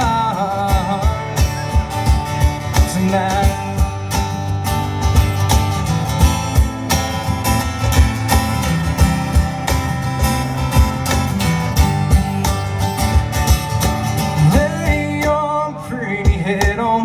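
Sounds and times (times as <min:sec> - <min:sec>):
guitar: 0:00.0 - 0:17.0
steady drum beat: 0:00.0 - 0:17.0.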